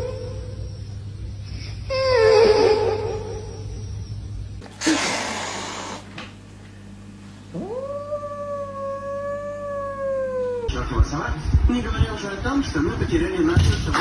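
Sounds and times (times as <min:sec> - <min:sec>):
cat yowling: 0:07.5 - 0:10.7.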